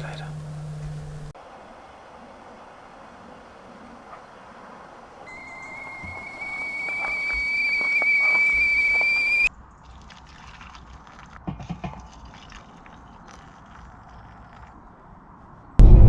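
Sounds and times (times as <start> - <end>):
kettle whistling: 0.0 - 1.3, 5.2 - 9.5.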